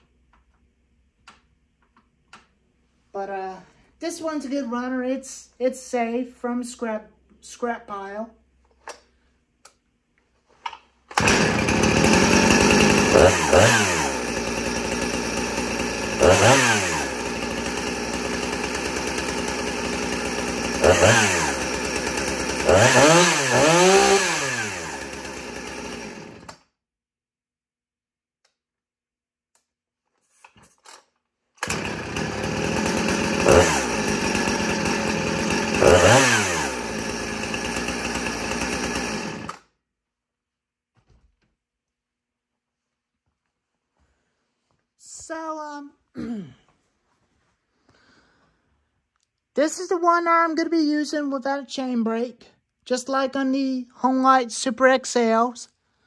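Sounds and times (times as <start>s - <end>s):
chainsaw idling and revving: 11.1s - 26.6s, 31.6s - 39.7s.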